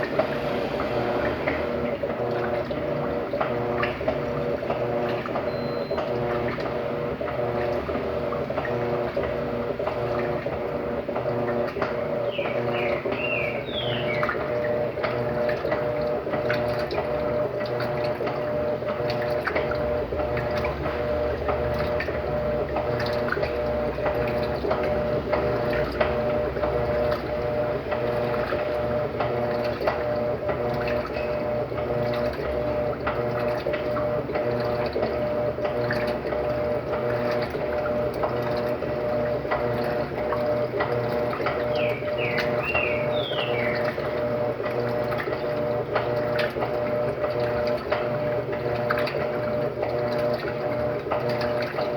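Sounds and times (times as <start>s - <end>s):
washing machine hum: 0.0s - 51.9s
water running in tub: 0.0s - 51.9s.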